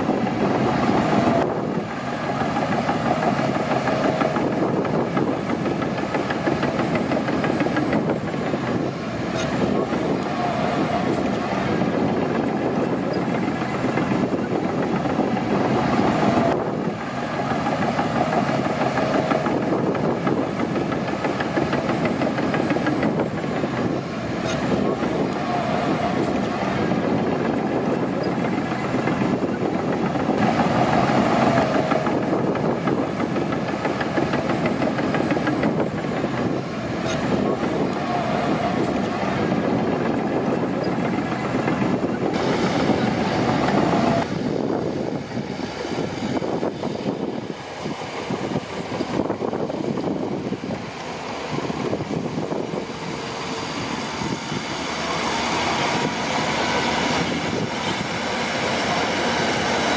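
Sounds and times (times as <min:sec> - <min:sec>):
rapid track clatter: 0:00.0 - 0:47.5
bulldozer diesel engine: 0:00.0 - 0:59.9.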